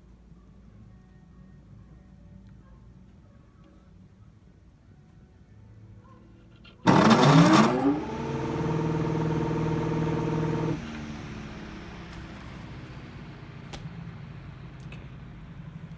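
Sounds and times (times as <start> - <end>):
electric fan motor humming: 6.9 - 12.1.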